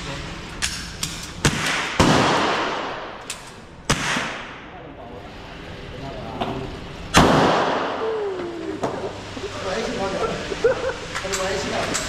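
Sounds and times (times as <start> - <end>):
gunshots with echo: 1.4 - 3.2, 3.9 - 4.6, 7.2 - 8.0.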